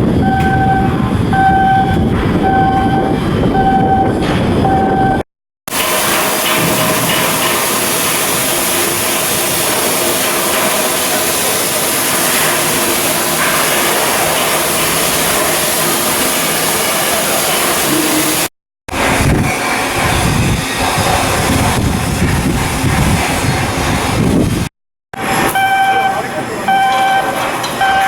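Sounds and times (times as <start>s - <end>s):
machinery noise with hiss: 5.7s - 28.0s.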